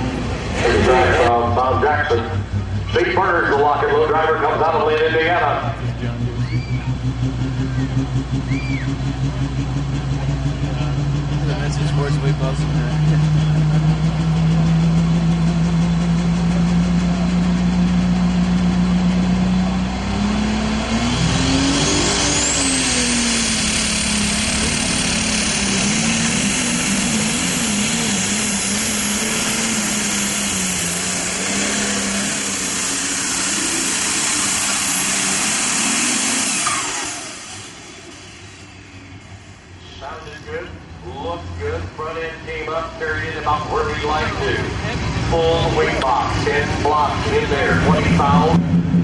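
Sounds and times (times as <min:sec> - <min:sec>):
diesel tractor engine: 0:00.0 - 0:49.0
turbocharger whistle: 0:05.6 - 0:09.3, 0:20.1 - 0:39.5.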